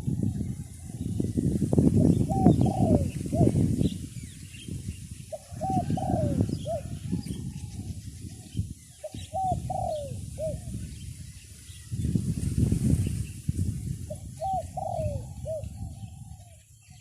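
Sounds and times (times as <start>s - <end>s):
wind buffeting microphone: 0.0s - 17.0s
dove cooing: 2.0s - 3.7s, 5.3s - 10.8s, 14.1s - 16.6s.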